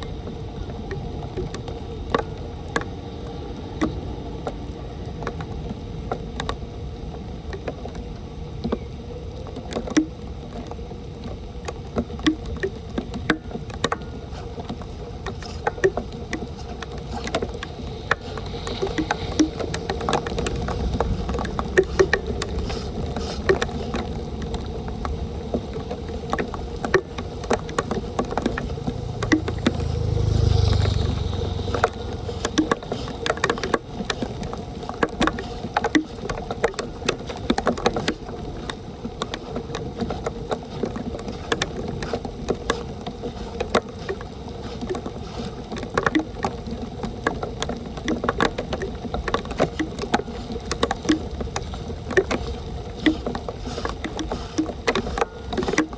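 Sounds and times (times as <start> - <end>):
rain: 0.0 - 55.9
running water: 0.0 - 55.9
low rumble: 28.6 - 32.5.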